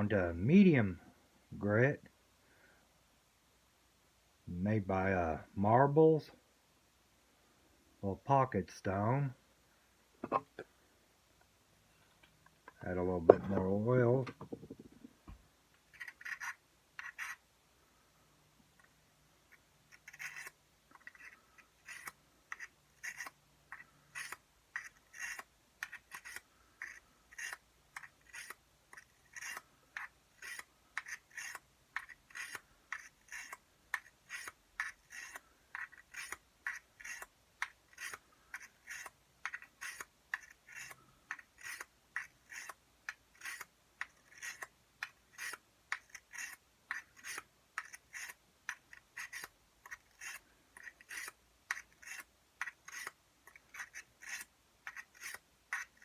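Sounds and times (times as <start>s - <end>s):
blade scraping on sharpening stone: 15.9s - 17.4s, 19.9s - 44.7s, 45.3s - 56.0s.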